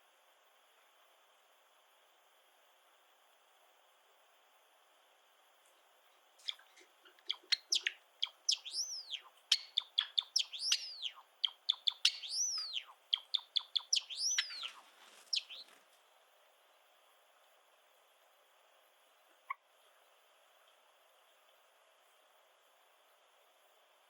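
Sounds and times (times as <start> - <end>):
sparrow singing clicks and whistles: 6.4 - 15.8.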